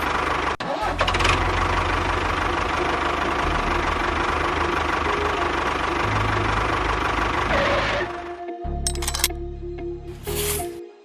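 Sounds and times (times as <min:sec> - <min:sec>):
engine knocking rumble: 0:00.0 - 0:08.2.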